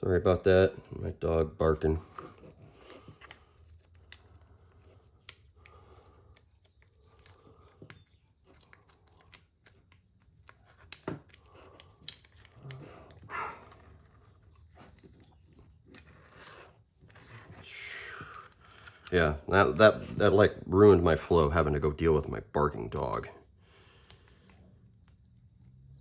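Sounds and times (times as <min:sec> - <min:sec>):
small parts and tools clicking: 0:02.1 - 0:19.2.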